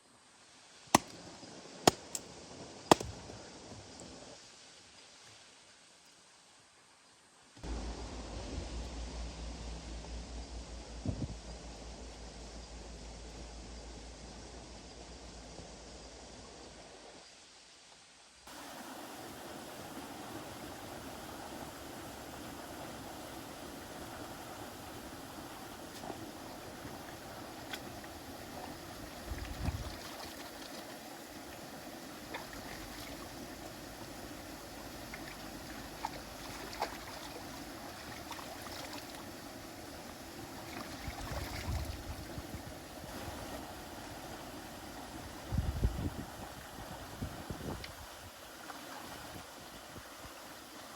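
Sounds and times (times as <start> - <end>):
low thumps: 7.7 - 13.8
rushing water: 16.0 - 50.9
small ticks and drips: 32.2 - 39.3.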